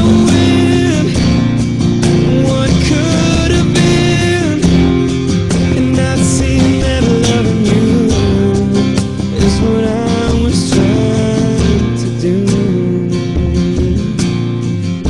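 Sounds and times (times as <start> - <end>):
person singing long notes: 0.0 - 1.4
acoustic guitar strumming: 0.0 - 15.0.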